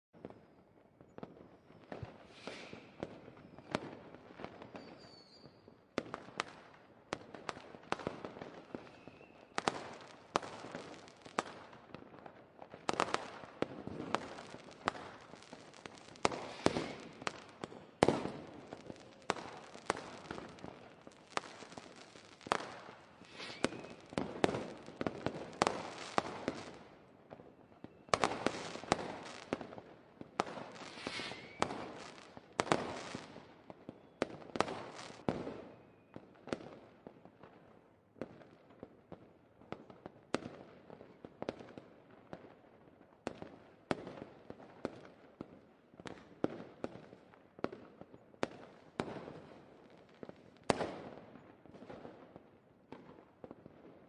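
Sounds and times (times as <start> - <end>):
fireworks bangs with crackling: 1.1 - 37.5.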